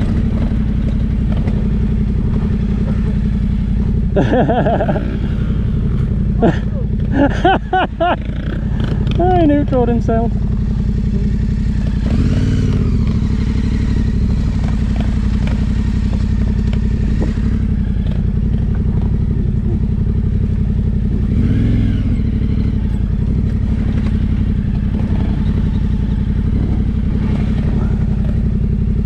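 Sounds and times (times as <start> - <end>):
knocks and clatter: 0.0 - 4.1, 14.2 - 20.1, 22.9 - 29.0
motorcycle engine revving: 0.0 - 29.0.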